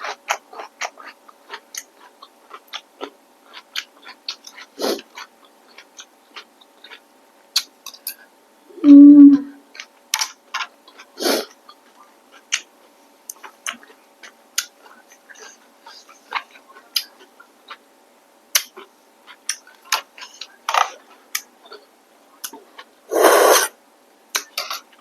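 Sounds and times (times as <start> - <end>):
chewing mouth clicks and smacks: 0.0 - 7.0, 7.6 - 8.2.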